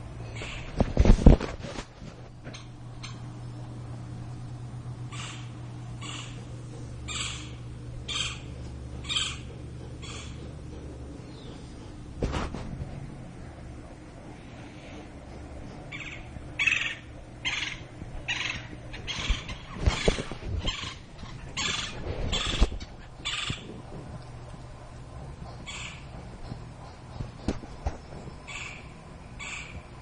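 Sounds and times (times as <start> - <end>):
woodpecker harsh raspy calls: 5.1 - 10.5, 15.9 - 23.8, 25.5 - 26.3, 28.4 - 29.9.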